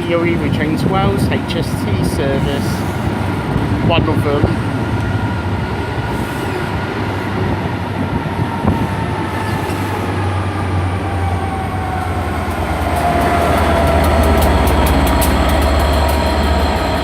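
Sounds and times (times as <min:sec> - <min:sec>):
diesel locomotive engine drone: 0:00.0 - 0:17.0
wheels clicking over rail joints: 0:11.9 - 0:17.0.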